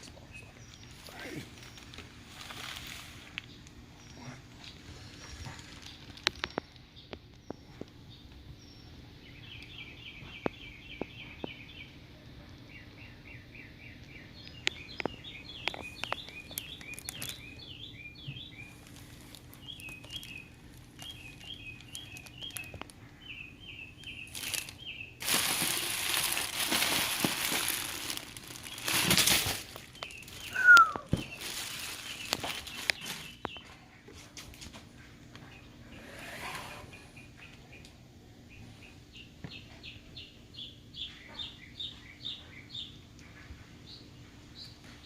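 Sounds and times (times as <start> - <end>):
crinkling and rustling: 0.0 - 7.9, 15.0 - 17.7, 18.4 - 23.1, 24.0 - 35.0
bird chirping: 3.4 - 34.0, 35.0 - 45.0.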